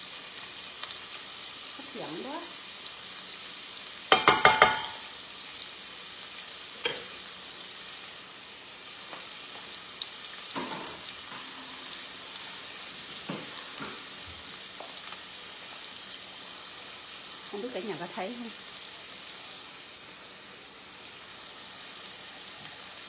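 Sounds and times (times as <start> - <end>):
chicken sizzling in pan: 0.0 - 23.0
metal utensil clattering on pan: 4.1 - 5.0, 10.5 - 11.0.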